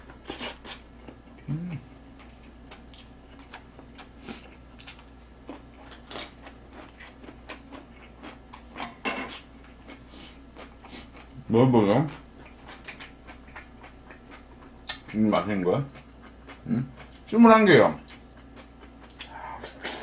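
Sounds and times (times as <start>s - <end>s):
mouth chewing and smacking: 0.3s - 11.4s, 12.1s - 15.2s, 18.0s - 20.0s
person humming mm: 1.4s - 1.9s, 19.2s - 20.0s.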